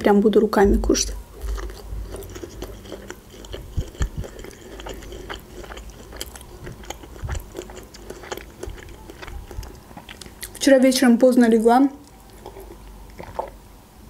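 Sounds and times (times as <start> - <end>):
person chewing food: 1.1 - 10.6, 12.0 - 13.6.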